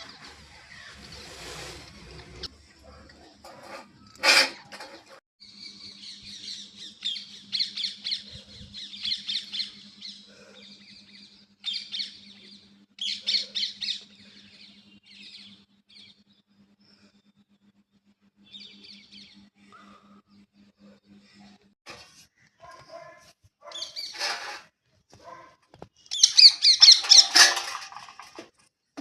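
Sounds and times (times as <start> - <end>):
birds squawking and chattering: 0.0 - 2.5, 4.3 - 16.1, 22.4 - 24.6, 26.1 - 27.8.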